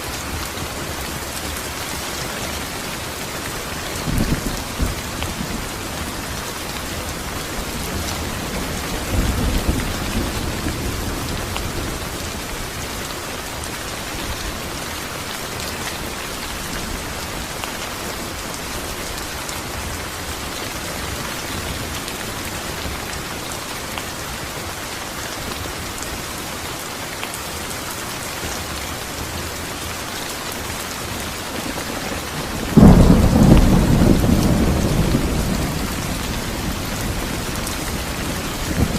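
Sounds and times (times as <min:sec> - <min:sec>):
steady rain falling: 0:00.0 - 0:38.9
low roll of thunder: 0:31.5 - 0:38.9
loud thunderclap: 0:31.6 - 0:38.9.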